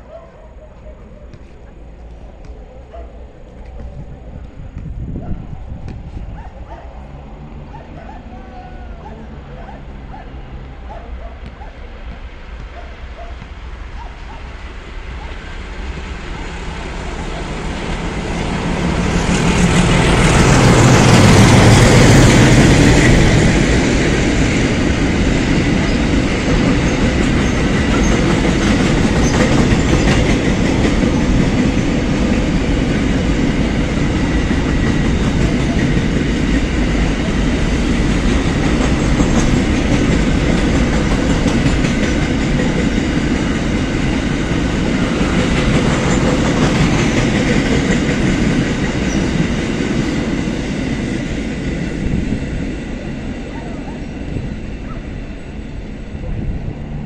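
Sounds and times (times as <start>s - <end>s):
locomotive engine rumble: 0.0s - 57.0s
train wheels clattering on rails: 10.8s - 55.0s.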